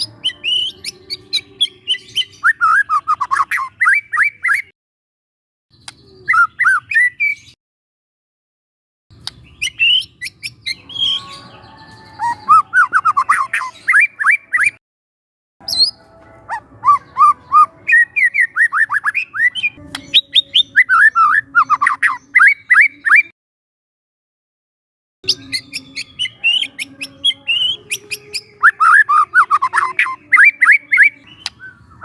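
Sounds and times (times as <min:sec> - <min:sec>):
bird singing whistled notes: 0:00.0 - 0:04.7, 0:05.8 - 0:07.6, 0:09.3 - 0:14.8, 0:15.6 - 0:23.3, 0:25.3 - 0:32.0
sharp bird clicks: 0:05.7 - 0:06.8, 0:09.2 - 0:10.6.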